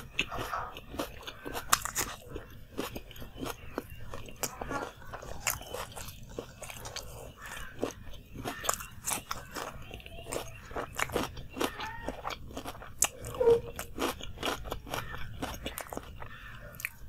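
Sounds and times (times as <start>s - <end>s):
crunchy chewing of food: 0.0s - 17.0s
mouth sounds: 13.1s - 14.0s.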